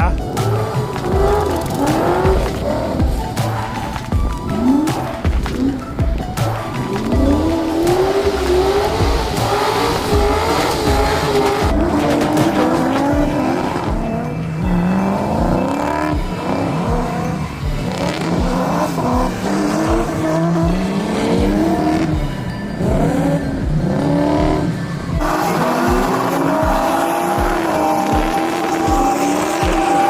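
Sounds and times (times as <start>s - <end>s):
car engines revving hard: 0.0s - 30.0s
tire squeal: 0.0s - 30.0s.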